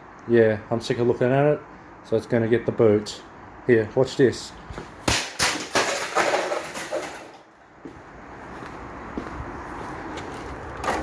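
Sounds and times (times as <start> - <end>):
fan being smashed: 4.7 - 7.5
clatter of breaking parts: 5.1 - 7.5.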